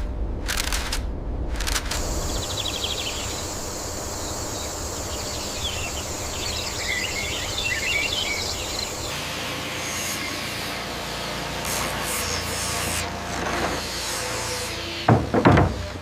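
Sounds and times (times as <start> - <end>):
low rumble: 0.0 - 4.3
high insect-like drone: 1.9 - 13.1
birds chirping: 2.0 - 9.2.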